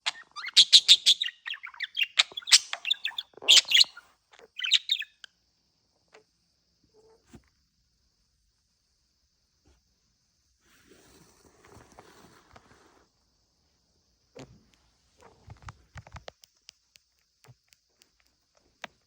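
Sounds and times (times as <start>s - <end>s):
budgerigar chirping and warbling: 0.0s - 5.2s
faint clicks: 14.4s - 19.0s.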